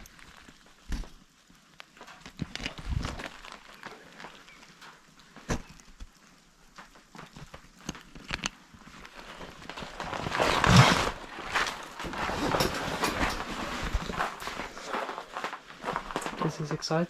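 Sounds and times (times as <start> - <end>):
footsteps: 1.9 - 16.8
scraping rumble: 9.0 - 16.7.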